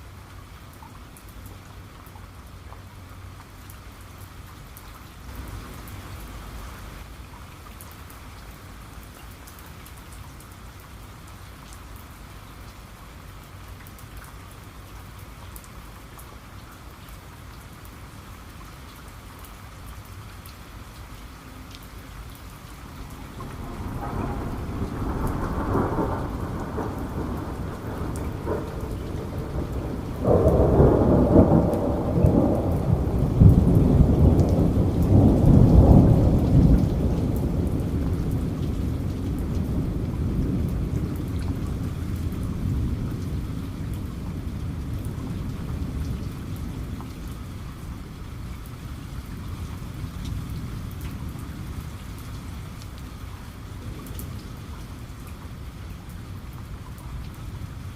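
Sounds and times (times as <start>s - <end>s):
heavy rainfall: 0.0s - 57.9s
thunder rumbling: 22.8s - 47.5s.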